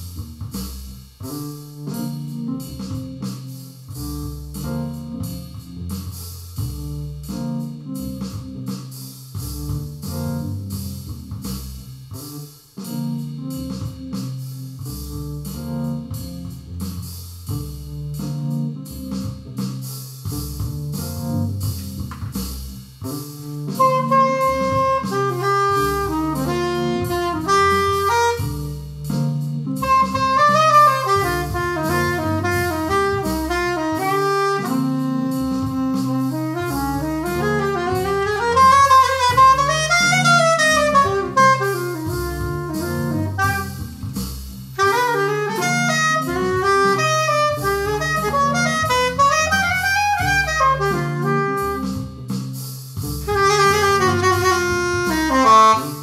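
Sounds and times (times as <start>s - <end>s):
bass line: 0.0s - 56.0s
drums: 0.0s - 56.0s
saxophone-like lead melody: 23.0s - 56.0s.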